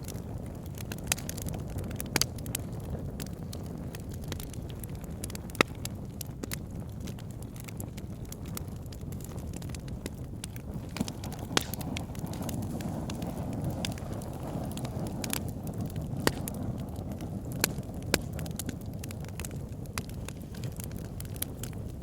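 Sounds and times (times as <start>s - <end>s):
fire flames rumbling: 0.0s - 22.0s
logs crackling and popping: 0.0s - 22.0s.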